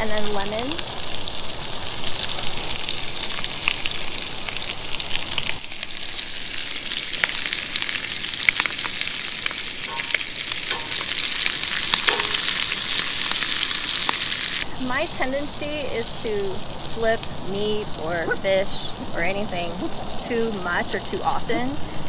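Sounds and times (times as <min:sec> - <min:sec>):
fish sizzling in a pan: 0:00.0 - 0:22.0
crackling pops: 0:07.0 - 0:14.6.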